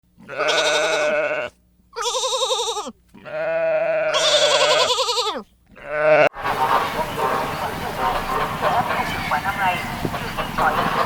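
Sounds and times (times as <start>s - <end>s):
sheep bleating: 0.2s - 6.4s.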